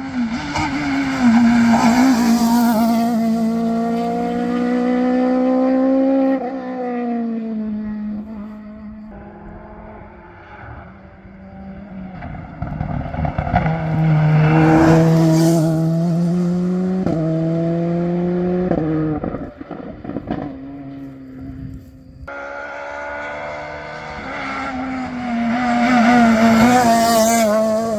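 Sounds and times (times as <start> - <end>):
rally car engine at full throttle: 0.0 - 27.9
tyre and road noise: 10.2 - 27.9.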